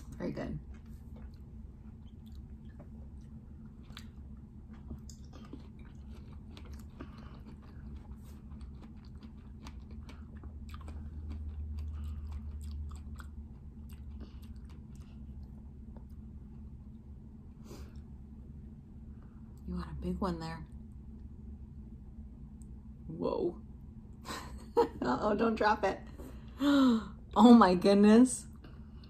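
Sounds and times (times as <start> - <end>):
steady low hum: 0.0 - 29.0
chewing with wet mouth sounds: 0.6 - 17.0.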